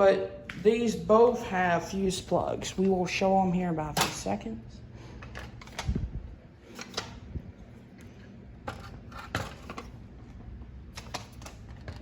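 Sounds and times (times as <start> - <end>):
plastic fans clicking and knocking: 8.6 - 12.0.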